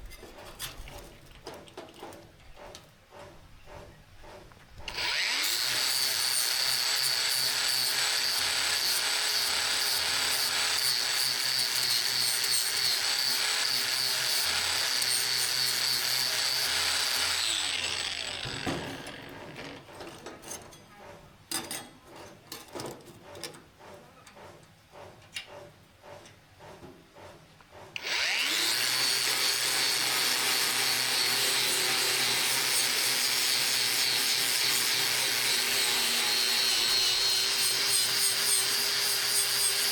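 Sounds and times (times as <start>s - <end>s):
power tool grinding steel: 4.9s - 19.9s, 28.0s - 39.9s.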